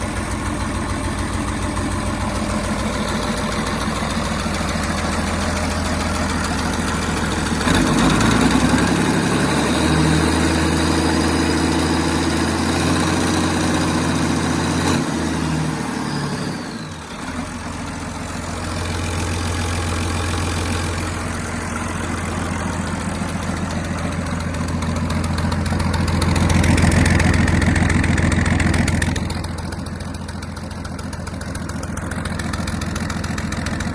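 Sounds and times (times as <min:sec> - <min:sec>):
diesel engine idling and revving: 0:00.0 - 0:33.9.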